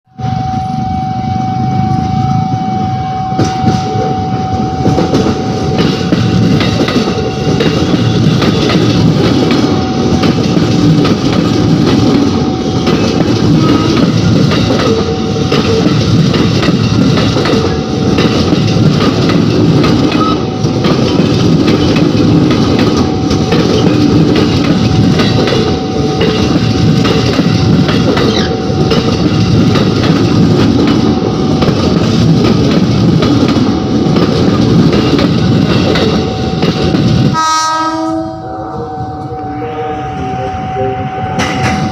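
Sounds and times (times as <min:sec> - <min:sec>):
train rumbling past: 0:00.1 - 0:41.9
wheels clacking over rail joints: 0:04.8 - 0:37.4
constant high tone: 0:38.3 - 0:41.9.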